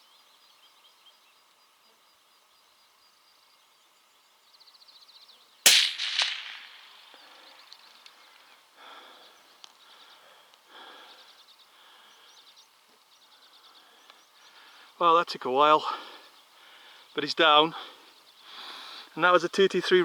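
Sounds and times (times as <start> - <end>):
gunshot echo: 5.7 - 7.9
rifle shot: 5.7 - 7.9.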